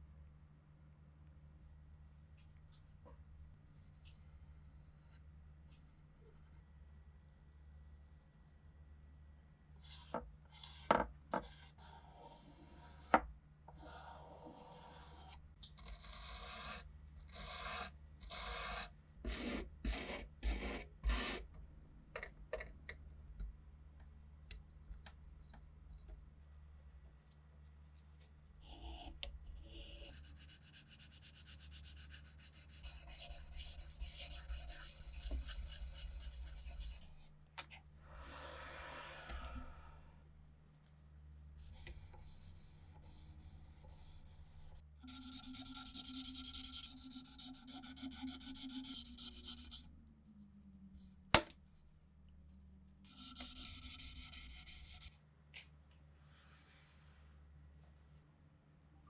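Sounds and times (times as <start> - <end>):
hand rubbing and scraping: 53.1 - 55.1.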